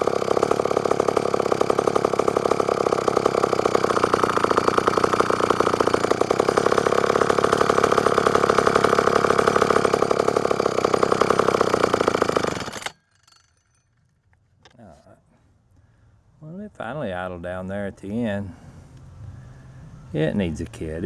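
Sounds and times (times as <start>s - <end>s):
chainsaw engine running: 0.0s - 13.5s.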